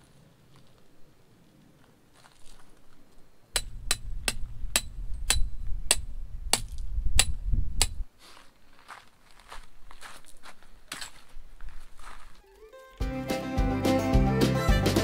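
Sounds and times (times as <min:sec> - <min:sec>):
hammer striking tent stake: 0:03.6 - 0:08.0
low rumble: 0:03.6 - 0:08.0.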